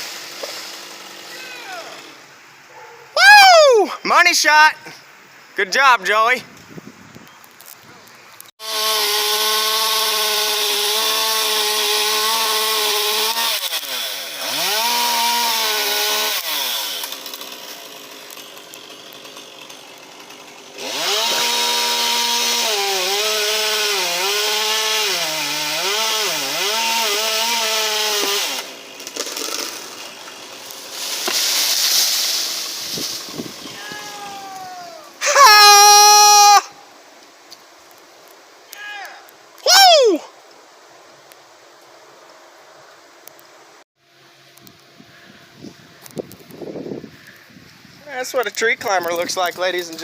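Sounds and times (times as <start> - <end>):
chainsaw revving and cutting wood: 0.0 - 2.3, 8.6 - 33.5.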